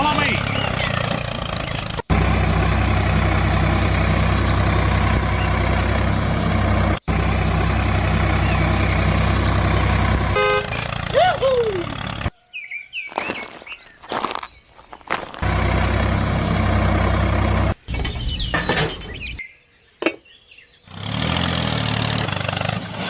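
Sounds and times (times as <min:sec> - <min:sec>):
vehicle engine droning: 0:00.0 - 0:12.3, 0:15.3 - 0:19.4, 0:20.9 - 0:23.0
short horn toot: 0:10.3 - 0:10.8.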